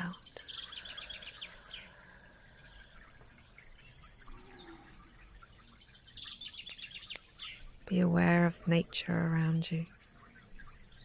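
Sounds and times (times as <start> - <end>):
distant bird chirps: 0.0 - 8.1.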